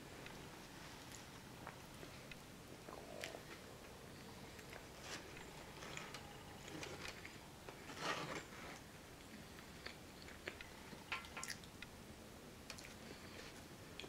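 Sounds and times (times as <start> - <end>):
chewing and mouth sounds: 12.7 - 14.0.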